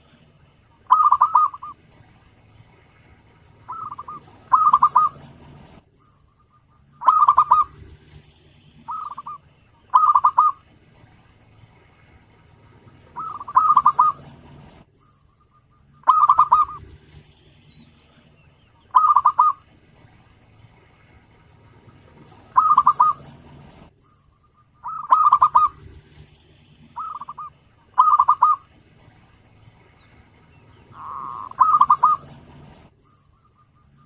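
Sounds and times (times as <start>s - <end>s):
dove cooing: 0.8s - 2.1s, 3.5s - 8.2s, 8.8s - 11.2s, 12.8s - 14.8s, 15.4s - 17.3s, 18.8s - 20.2s, 21.7s - 23.9s, 24.8s - 29.2s, 30.6s - 34.0s.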